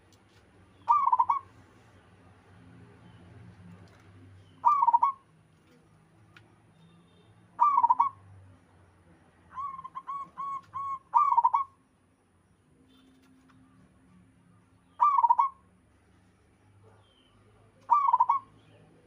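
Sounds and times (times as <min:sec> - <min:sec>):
dove cooing: 0:00.9 - 0:01.5, 0:04.6 - 0:05.2, 0:07.6 - 0:08.2, 0:09.6 - 0:11.7, 0:15.0 - 0:15.5, 0:17.9 - 0:18.5.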